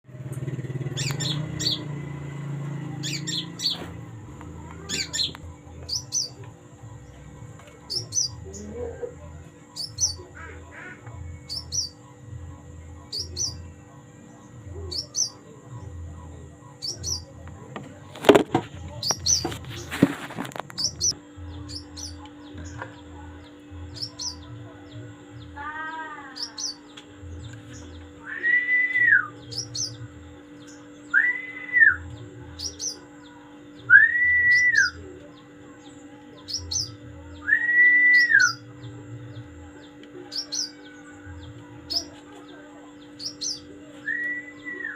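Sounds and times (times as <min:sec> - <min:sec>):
small bird chirping: 0:00.8 - 0:02.3, 0:02.9 - 0:04.0, 0:04.6 - 0:09.0, 0:09.7 - 0:17.4, 0:18.9 - 0:28.2, 0:29.0 - 0:31.4, 0:34.5 - 0:37.4
rustling noise: 0:18.1 - 0:21.0
bird whistled calls: 0:31.1 - 0:32.0, 0:33.9 - 0:35.0, 0:36.7 - 0:38.6.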